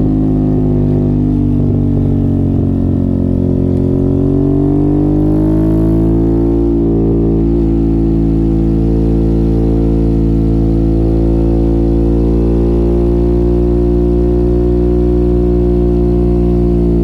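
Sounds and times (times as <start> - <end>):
motorcycle engine at steady revs: 0.0 - 17.0.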